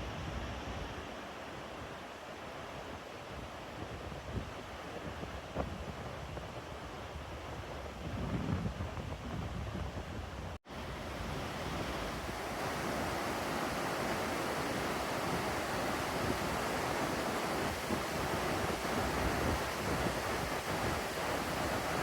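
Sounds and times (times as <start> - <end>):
wind buffeting microphone: 7.2 - 22.0
waterfall rushing: 10.8 - 22.0.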